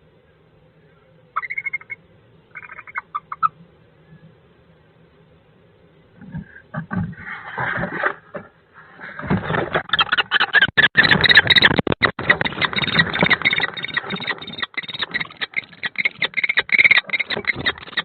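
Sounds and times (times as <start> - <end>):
harsh bird calls: 1.4 - 3.6, 9.8 - 18.0
birds scuffling: 6.0 - 18.0
wing flapping: 6.3 - 18.0.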